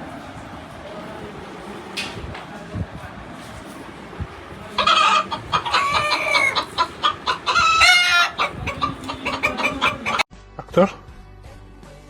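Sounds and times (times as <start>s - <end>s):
low background noise: 0.0s - 10.3s
chicken clucking and squawking: 4.6s - 11.0s.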